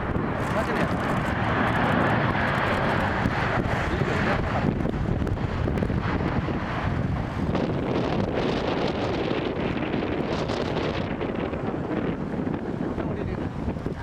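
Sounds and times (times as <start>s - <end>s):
gusty wind buffeting microphone: 0.0s - 14.0s.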